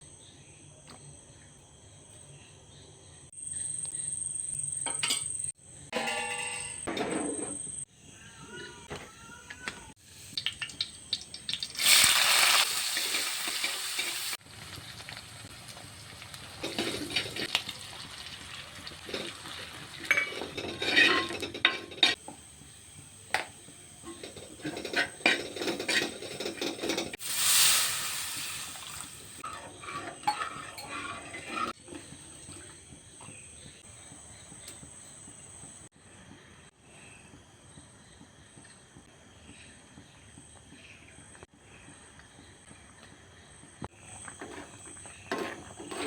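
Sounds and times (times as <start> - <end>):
loud sizzling: 10.6 - 15.5, 22.6 - 31.8
spoon clinking against pot: 20.0 - 22.2, 29.4 - 31.7.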